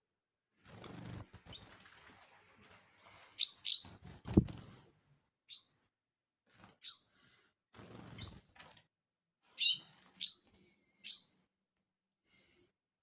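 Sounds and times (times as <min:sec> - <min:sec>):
small bird chirping: 0:00.8 - 0:01.6, 0:03.4 - 0:03.9, 0:04.9 - 0:05.8, 0:06.8 - 0:07.1, 0:09.6 - 0:11.4.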